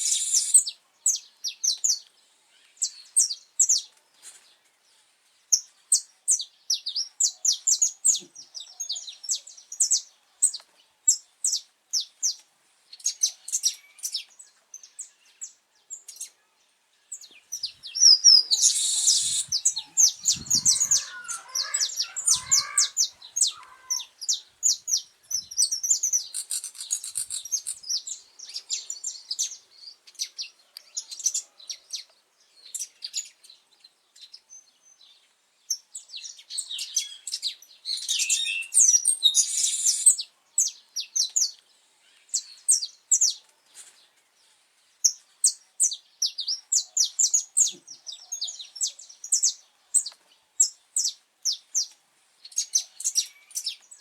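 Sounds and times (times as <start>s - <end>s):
finch singing: 17.1s - 31.4s.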